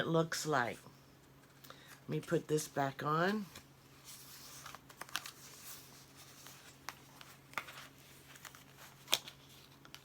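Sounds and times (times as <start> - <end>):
faint steady hum: 0.0 - 10.0
paper rustling and crinkling: 3.2 - 10.0.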